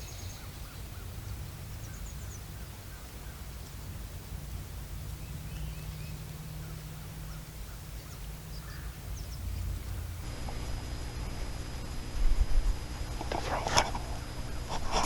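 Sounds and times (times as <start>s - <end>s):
small bird chirps: 0.0s - 3.9s, 4.8s - 10.2s
wind rumble on microphone: 0.0s - 15.0s.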